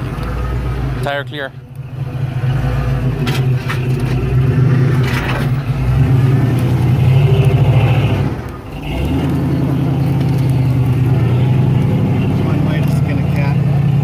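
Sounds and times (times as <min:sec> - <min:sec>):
off-road vehicle engine under load: 0:00.0 - 0:14.0.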